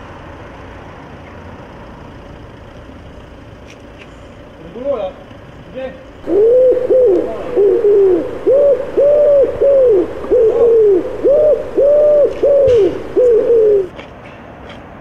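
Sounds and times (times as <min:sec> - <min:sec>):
loud coo-like hoots: 0:06.2 - 0:13.9.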